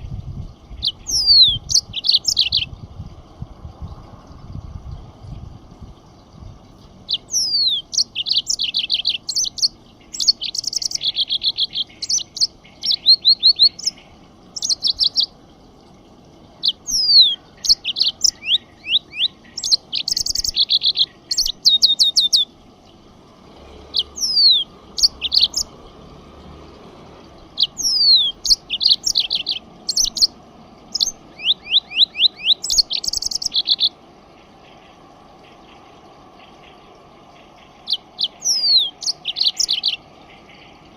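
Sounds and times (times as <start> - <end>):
songbird whistles and trills: 0.7 - 2.7, 7.1 - 14.0, 14.6 - 15.3, 16.6 - 22.5, 24.0 - 25.7, 27.6 - 34.0, 37.8 - 40.8.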